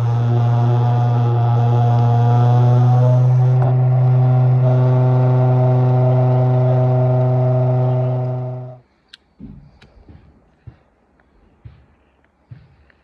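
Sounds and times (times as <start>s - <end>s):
electric lawnmower motor humming: 0.0s - 8.8s.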